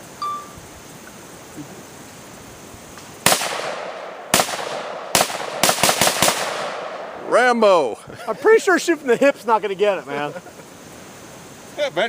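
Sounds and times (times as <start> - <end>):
gunshots with echo: 3.2 - 7.5.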